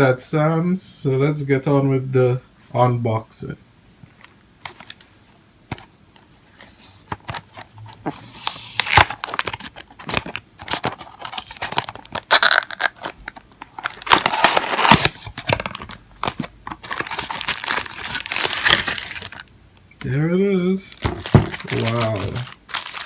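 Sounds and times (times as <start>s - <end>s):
packaging crinkling and tearing: 6.3s - 19.5s, 20.9s - 23.0s.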